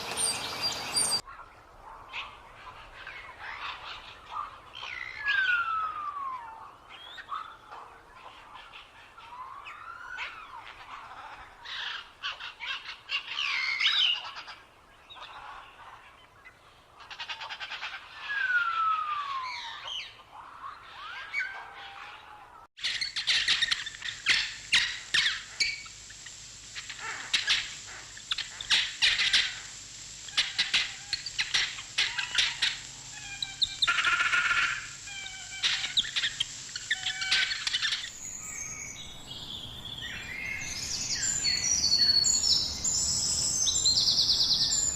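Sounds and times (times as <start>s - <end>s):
birds whistling and chirping: 0.0s - 1.2s, 3.5s - 7.6s, 18.1s - 20.2s, 30.4s - 44.9s
rapid high bird chirps: 0.0s - 1.2s, 22.8s - 44.9s.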